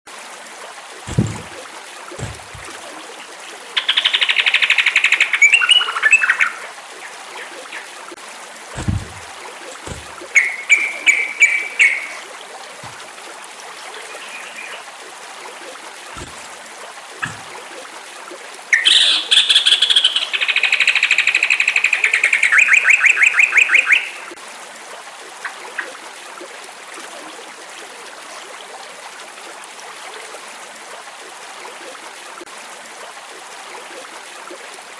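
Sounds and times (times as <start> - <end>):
running water hiss: 0.1 - 34.9
soft low thumps: 1.1 - 2.9, 8.8 - 10.4, 16.2 - 16.6, 17.2 - 17.6
bird singing bubbly phrases: 2.2 - 8.1, 8.8 - 12.2, 13.9 - 14.9, 18.7 - 24.4.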